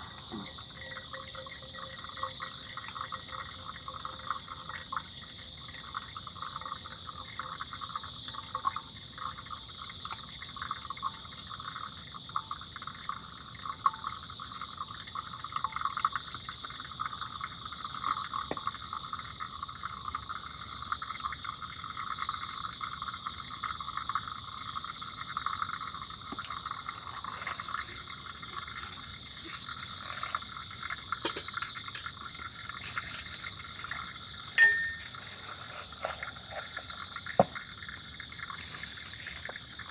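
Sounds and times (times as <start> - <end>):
high insect trill: 0.0 - 5.6, 20.6 - 39.9
crickets chirping: 0.0 - 39.9.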